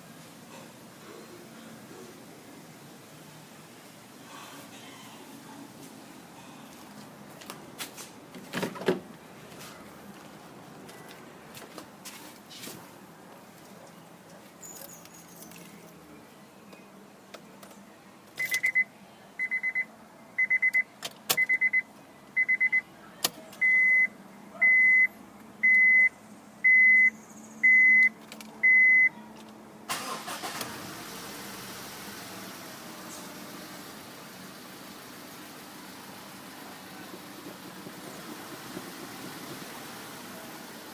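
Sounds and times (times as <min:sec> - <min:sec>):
high electronic warning beeps: 0:18.4 - 0:22.8, 0:23.6 - 0:29.1.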